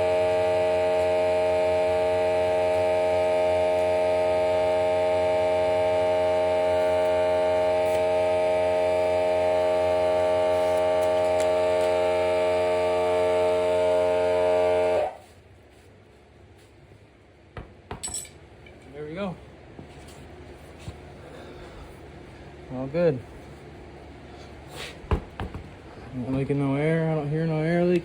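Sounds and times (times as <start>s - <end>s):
electric air compressor humming: 0.0s - 15.3s.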